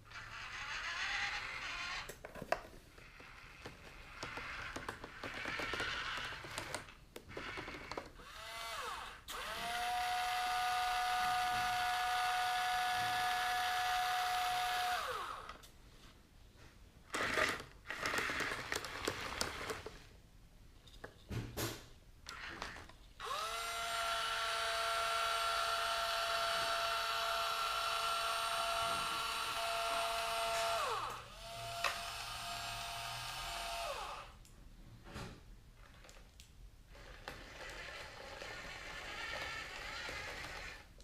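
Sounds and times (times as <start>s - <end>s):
small electric motors whining: 0.1s - 2.1s, 3.0s - 15.6s, 22.3s - 34.4s, 37.0s - 40.9s.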